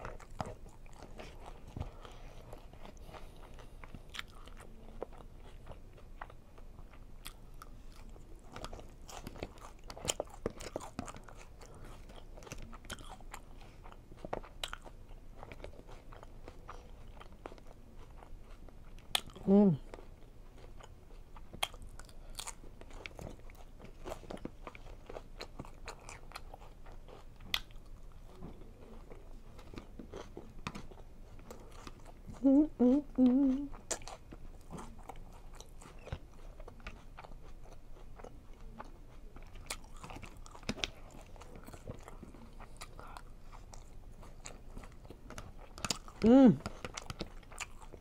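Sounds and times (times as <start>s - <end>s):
chewing and crunching salad: 0.0s - 48.0s
person humming: 19.4s - 19.8s, 32.4s - 33.8s, 46.2s - 46.7s.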